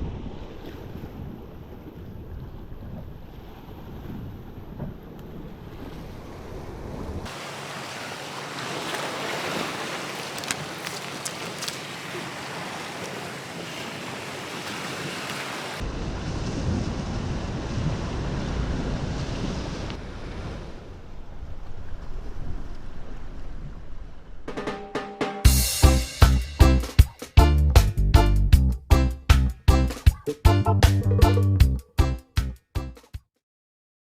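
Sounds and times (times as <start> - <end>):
sea waves breaking: 0.0 - 25.0.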